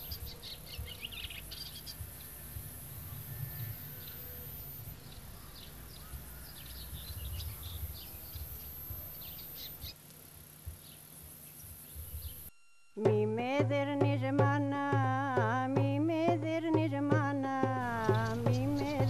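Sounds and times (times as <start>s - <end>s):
small birds chirping: 0.0s - 12.5s, 17.8s - 19.0s.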